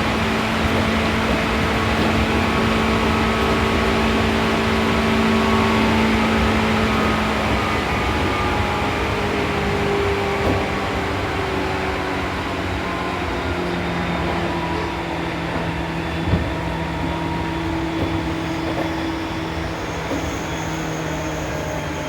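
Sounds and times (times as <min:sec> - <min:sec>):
train motor whine: 0:00.0 - 0:22.0
wheel and rail noise: 0:00.0 - 0:22.0.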